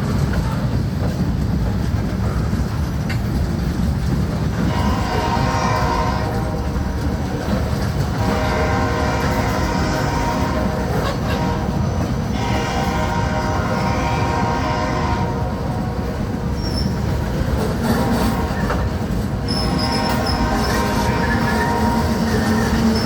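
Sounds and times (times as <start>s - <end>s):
freight train rumbling past: 0.0s - 23.0s
high-pitched wheel squeals: 16.6s - 17.1s, 19.5s - 23.0s.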